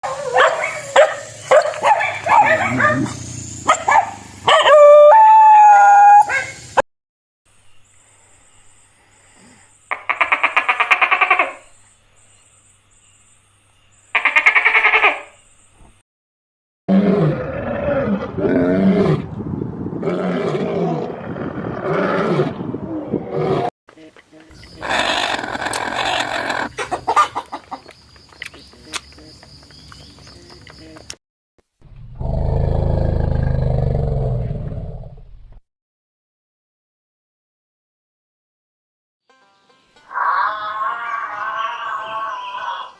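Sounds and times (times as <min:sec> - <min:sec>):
dog yipping and barking: 0:00.0 - 0:06.6, 0:24.8 - 0:27.8
dog howling: 0:04.5 - 0:06.5, 0:40.1 - 0:42.9
lion roaring: 0:16.9 - 0:19.4, 0:20.0 - 0:23.7, 0:32.1 - 0:35.2.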